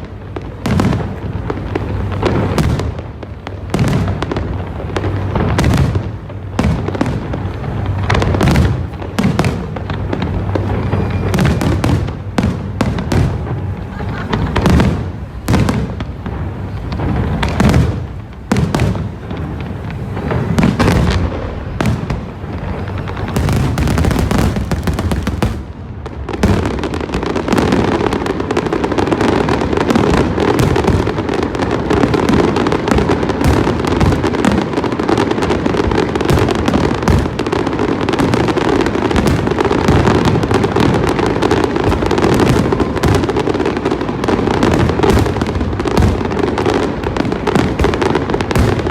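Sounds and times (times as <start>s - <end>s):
fireworks barrage crackling: 0.0s - 48.9s
fireworks booming: 0.0s - 48.9s.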